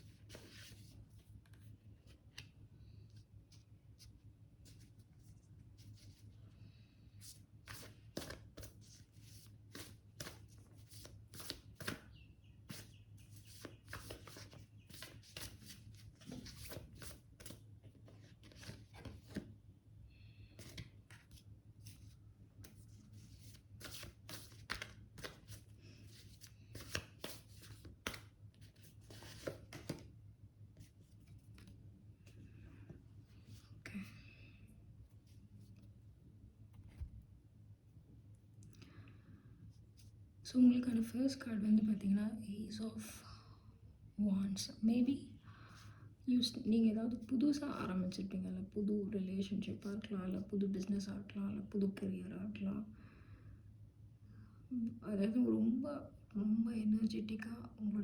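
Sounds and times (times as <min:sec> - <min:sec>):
cards being shuffled: 0:07.2 - 0:19.5, 0:20.6 - 0:30.1, 0:30.8 - 0:31.8.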